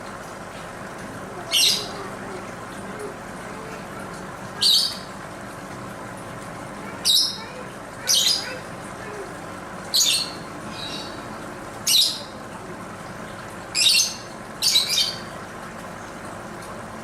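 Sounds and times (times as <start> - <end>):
lovebird squawking: 1.5 - 2.0, 7.0 - 8.7.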